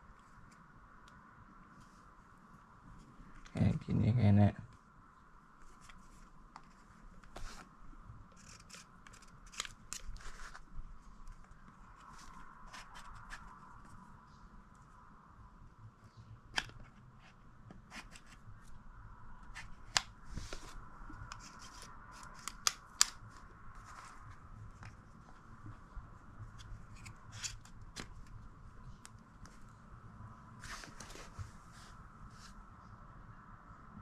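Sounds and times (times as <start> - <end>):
faint steady hum: 0.0 - 34.0
rustling and scraping: 5.6 - 14.4, 19.4 - 29.8, 30.6 - 32.6.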